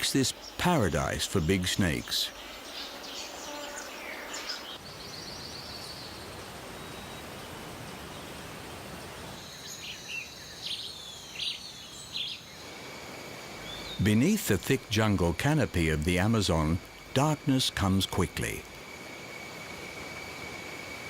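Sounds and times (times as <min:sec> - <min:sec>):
bird calls: 0:00.0 - 0:08.4, 0:09.4 - 0:12.7
background hiss: 0:00.0 - 0:21.0.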